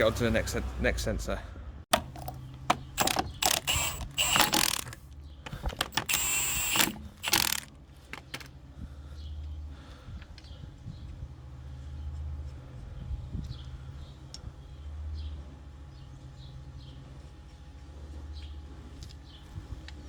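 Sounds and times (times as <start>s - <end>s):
car bonnet clicks and clunks: 1.9s - 6.2s
harsh clatter: 1.9s - 8.5s.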